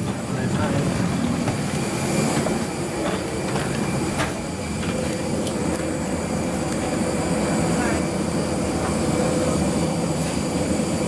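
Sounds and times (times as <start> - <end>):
airliner ground systems rumble: 0.0 - 11.0.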